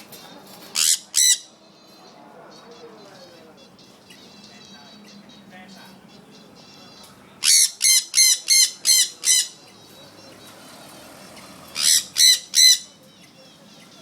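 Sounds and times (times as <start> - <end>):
parrot squawking: 0.7 - 1.6, 2.7 - 9.7, 10.6 - 13.0.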